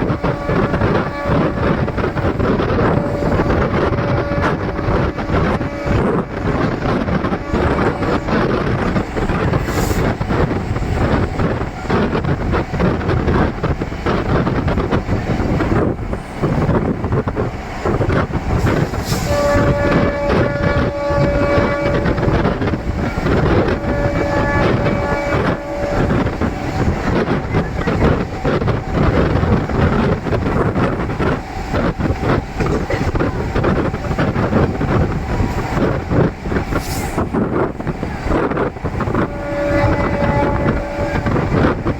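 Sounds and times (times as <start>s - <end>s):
train horn blasts: 0.0s - 12.8s, 18.5s - 30.8s, 37.0s - 41.9s
train wheels rumbling on rails: 0.0s - 41.9s.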